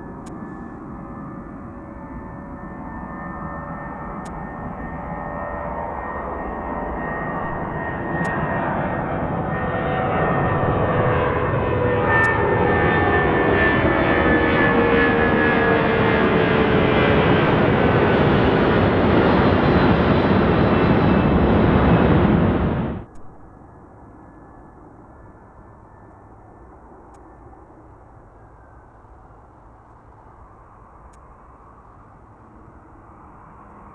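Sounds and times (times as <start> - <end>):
jet engines whining: 0.0 - 23.2.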